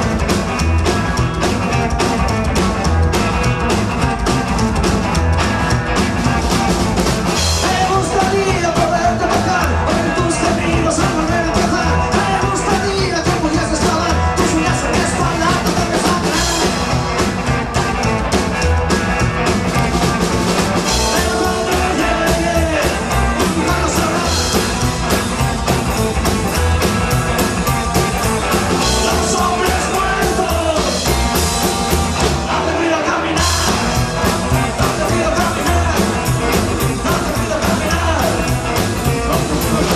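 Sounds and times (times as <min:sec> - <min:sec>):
rock band playing: 0:00.0 - 0:39.9
person singing: 0:07.5 - 0:16.9, 0:20.9 - 0:24.8, 0:28.7 - 0:31.1, 0:32.2 - 0:39.9.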